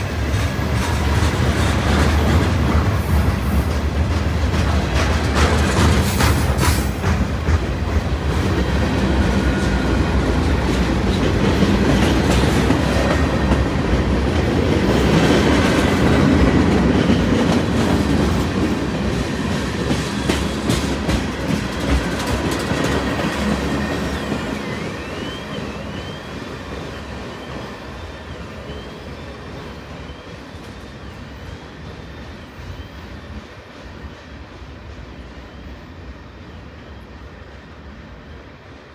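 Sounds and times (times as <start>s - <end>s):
freight train rolling past: 0.0s - 38.9s
wheels clicking over track: 3.7s - 24.3s.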